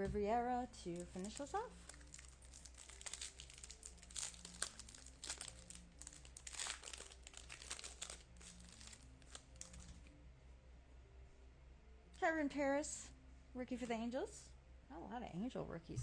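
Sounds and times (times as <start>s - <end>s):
foil wrapper crinkling and tearing: 1.0s - 10.0s.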